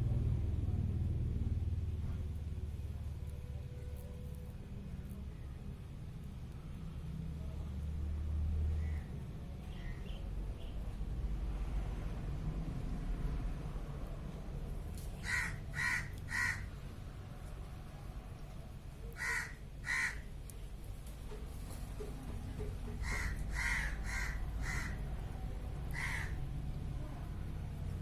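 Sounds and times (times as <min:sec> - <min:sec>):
steady low rumble: 0:00.0 - 0:28.0
bird calling: 0:15.2 - 0:16.7, 0:19.1 - 0:20.3.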